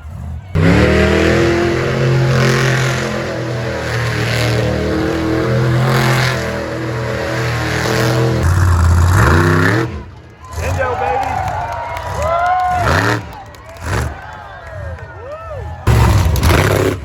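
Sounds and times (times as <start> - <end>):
vehicle engine revving: 0.0 - 15.1, 15.7 - 17.0.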